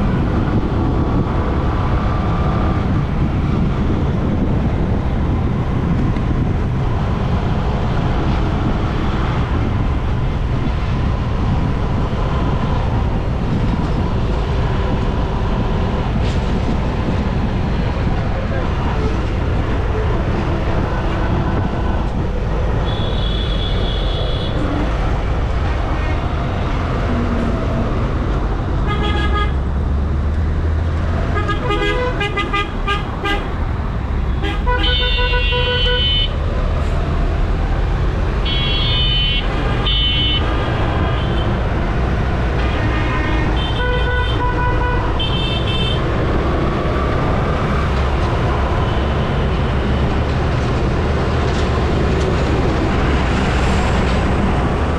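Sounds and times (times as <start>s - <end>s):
road traffic rumble: 0.0s - 54.9s
vehicle horns honking: 22.8s - 24.6s, 28.8s - 29.6s, 31.3s - 33.5s, 34.3s - 36.3s, 38.4s - 40.5s, 42.6s - 46.0s.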